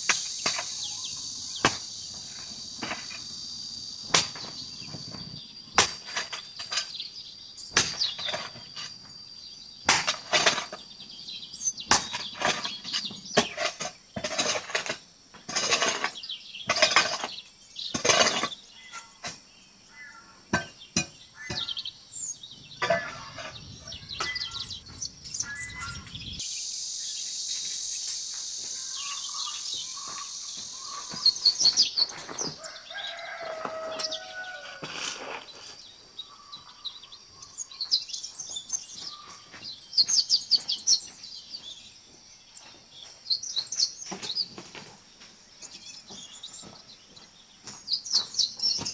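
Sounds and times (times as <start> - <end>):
knocks and scraping: 0.0 - 3.4, 4.0 - 7.1, 7.7 - 9.1, 9.9 - 10.9, 11.9 - 19.5, 20.5 - 26.4, 30.0 - 35.9
birds chirping: 0.0 - 14.8, 15.6 - 48.9
insect drone: 0.0 - 15.0, 21.2 - 38.6
cricket trill: 0.0 - 48.9.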